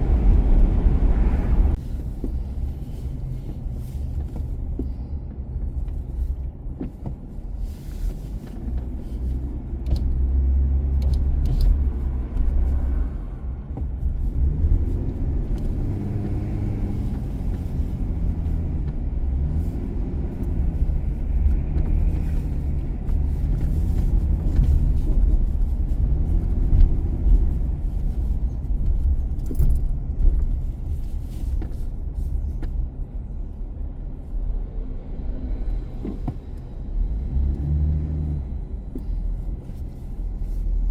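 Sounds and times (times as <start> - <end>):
car engine rumble: 0.0 - 40.9
road noise: 0.0 - 40.9
light clicks and rattles: 20.4 - 32.8.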